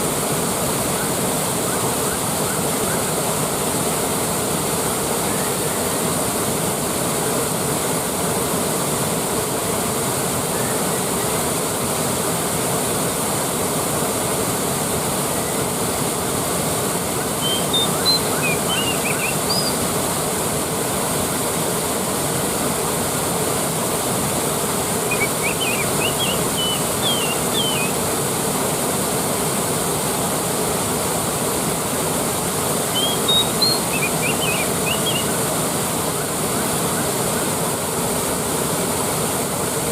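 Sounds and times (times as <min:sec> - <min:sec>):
waterfall rushing: 0:00.0 - 0:39.9
bird chirping: 0:17.4 - 0:19.8, 0:25.1 - 0:28.0, 0:32.9 - 0:35.4.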